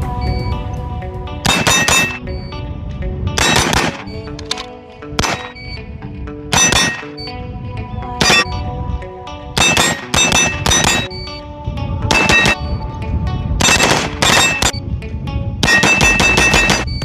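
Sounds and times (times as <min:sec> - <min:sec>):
background music: 0:00.0 - 0:17.0
rapid gunshots: 0:01.5 - 0:02.2, 0:03.4 - 0:04.1, 0:05.2 - 0:05.6, 0:06.6 - 0:07.2, 0:09.6 - 0:11.1, 0:12.1 - 0:12.6, 0:13.6 - 0:14.8, 0:15.6 - 0:16.9
steel targets ringing: 0:01.5 - 0:02.2, 0:06.5 - 0:07.3, 0:09.6 - 0:11.3, 0:12.1 - 0:12.6, 0:13.6 - 0:14.8, 0:15.6 - 0:17.0.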